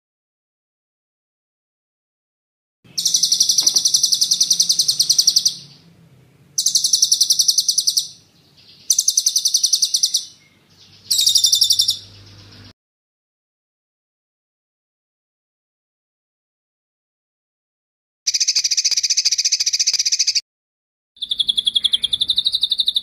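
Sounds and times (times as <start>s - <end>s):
songbird rolling trill: 2.9s - 6.0s, 6.6s - 12.7s, 21.2s - 23.0s.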